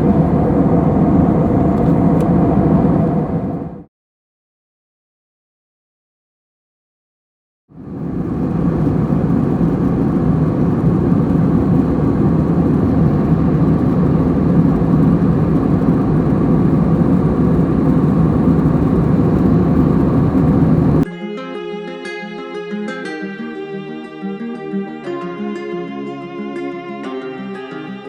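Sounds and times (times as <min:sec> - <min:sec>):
jet engine cabin noise: 0:00.0 - 0:03.9, 0:07.8 - 0:21.1
low hum: 0:00.0 - 0:03.9, 0:07.8 - 0:21.1
guitar music: 0:21.0 - 0:28.0.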